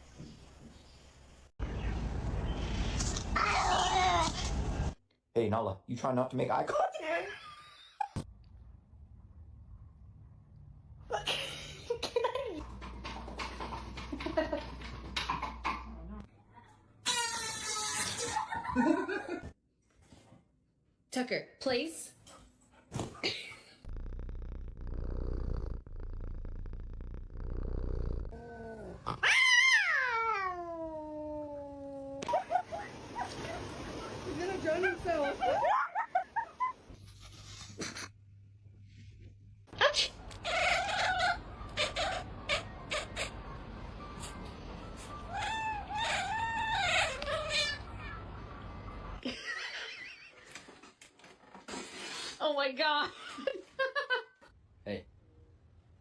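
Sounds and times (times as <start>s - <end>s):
cat purring rumble: 23.8s - 29.0s
cat crying: 29.1s - 32.2s, 45.3s - 48.3s.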